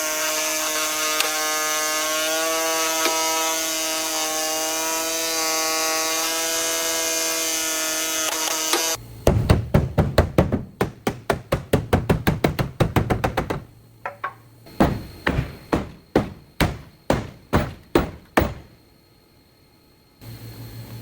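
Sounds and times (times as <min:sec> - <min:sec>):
power tool whining: 0:00.0 - 0:09.0
hammering: 0:09.2 - 0:18.8.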